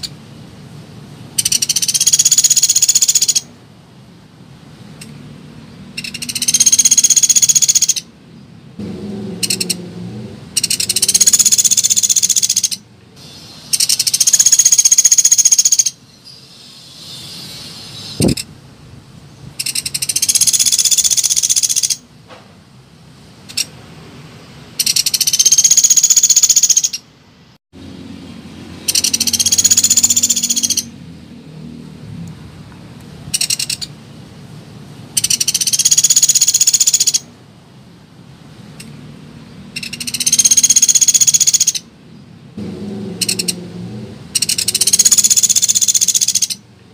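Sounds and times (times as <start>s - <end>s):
woodpecker rattling trills: 1.4s - 3.5s, 6.0s - 8.1s, 10.6s - 12.8s, 13.7s - 16.0s, 19.6s - 22.0s, 24.8s - 27.0s, 28.8s - 30.9s, 33.4s - 33.9s, 35.2s - 37.3s, 39.8s - 41.8s, 43.2s - 43.6s, 44.3s - 46.6s.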